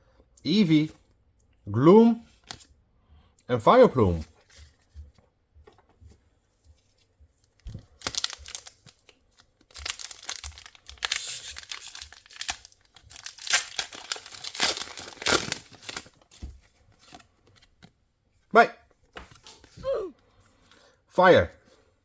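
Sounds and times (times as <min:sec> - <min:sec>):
foil wrapper crinkling and tearing: 0:07.8 - 0:16.4.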